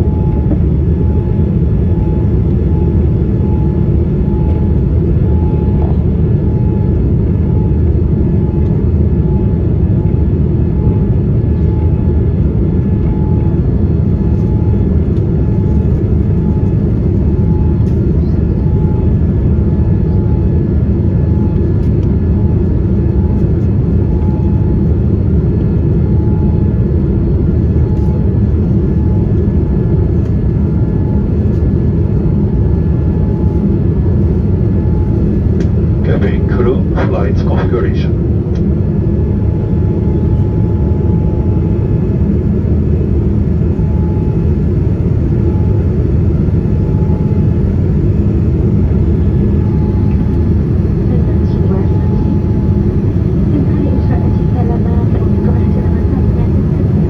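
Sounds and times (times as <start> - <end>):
airliner cabin engine roar: 0.0 - 57.0
faint pulsing tone: 39.2 - 57.0.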